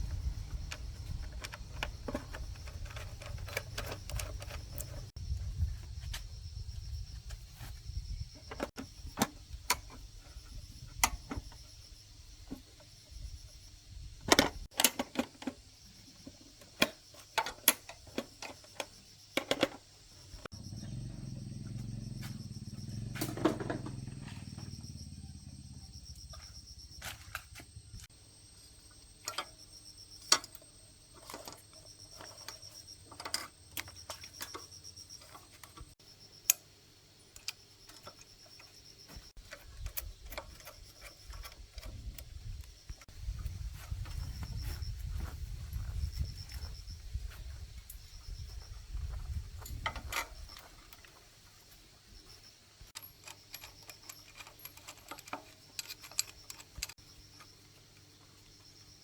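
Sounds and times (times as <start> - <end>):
metallic clicks of hand tools: 0.7 - 5.1, 30.2 - 36.7, 37.3 - 38.8, 52.9 - 57.5.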